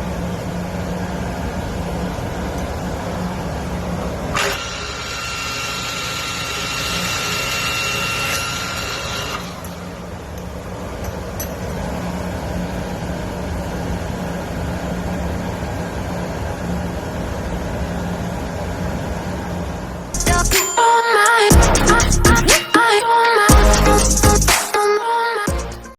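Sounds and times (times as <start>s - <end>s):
high whine: 20.2s - 24.8s.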